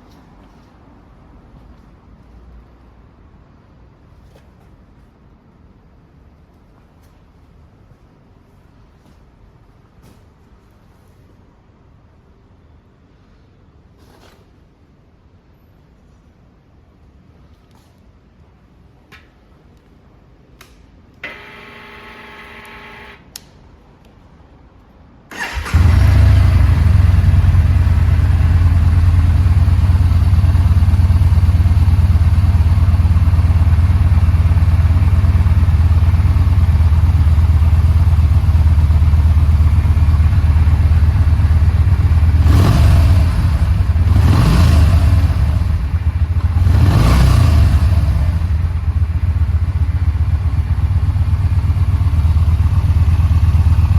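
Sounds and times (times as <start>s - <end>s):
brief steady hum: 21.2s - 23.2s
motorcycle throttle blips: 25.3s - 26.0s
motorcycle engine idling: 25.4s - 46.7s, 47.6s - 53.9s.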